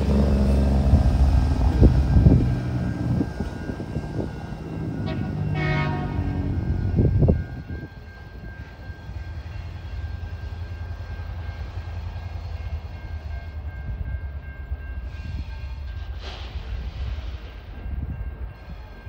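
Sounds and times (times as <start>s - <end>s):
freight train rumble: 0.0s - 19.0s
short hiss: 16.2s - 17.6s.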